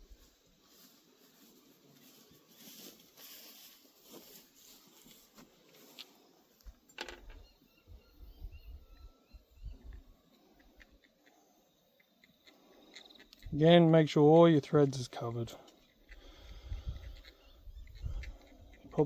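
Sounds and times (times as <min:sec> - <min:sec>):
bird chirps: 0:07.2 - 0:13.6, 0:15.7 - 0:19.0.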